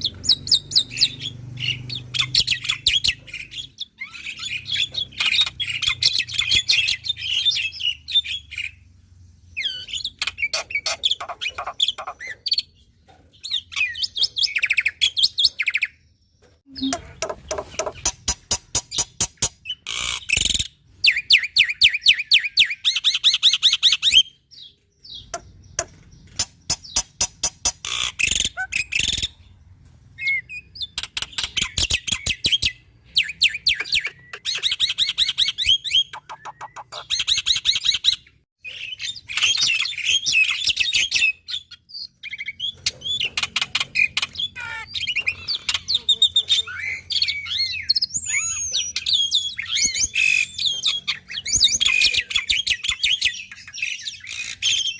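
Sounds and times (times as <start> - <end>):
bird harsh repeated notes: 16.7 - 21.3.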